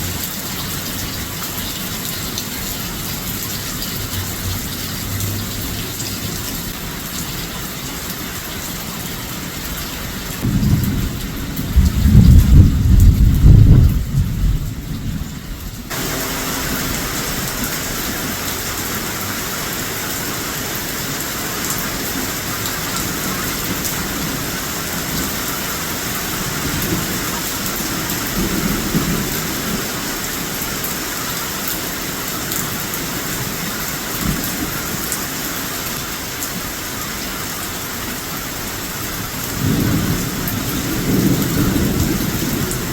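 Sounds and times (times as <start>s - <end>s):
heavy rain: 0.0s - 42.9s
thunder rumble: 10.4s - 19.8s, 39.5s - 42.9s.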